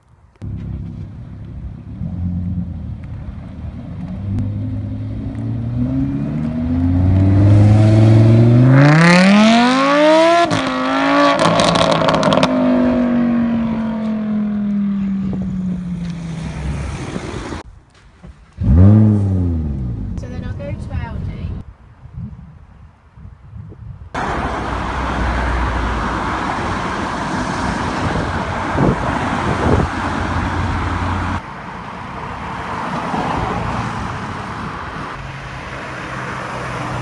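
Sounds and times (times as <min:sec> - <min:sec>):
sports car engine accelerating: 0:00.4 - 0:17.6, 0:18.6 - 0:20.4
another car revving: 0:01.8 - 0:17.6, 0:18.6 - 0:20.2, 0:24.2 - 0:37.0.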